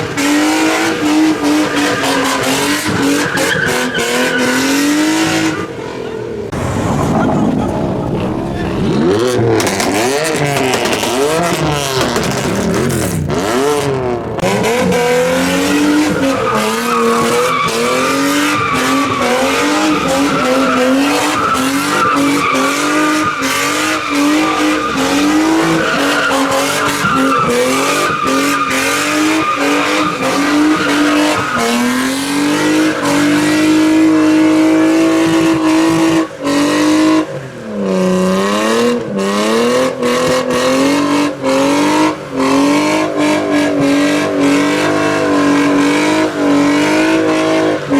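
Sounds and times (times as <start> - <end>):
tyres squealing and skidding: 0.0 - 13.2, 14.6 - 36.2
car engine revving: 0.0 - 47.9.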